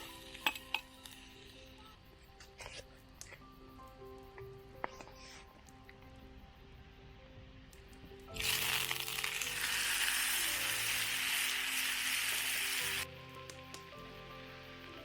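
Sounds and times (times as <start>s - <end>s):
steak sizzling: 0.0s - 1.6s, 8.3s - 14.0s
soft background music: 0.0s - 15.0s.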